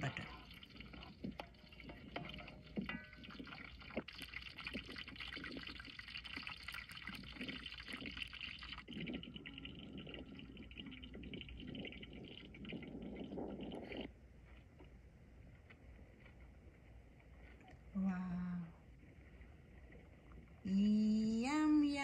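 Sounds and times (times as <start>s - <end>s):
butter sizzling in a pot: 0.0s - 8.9s.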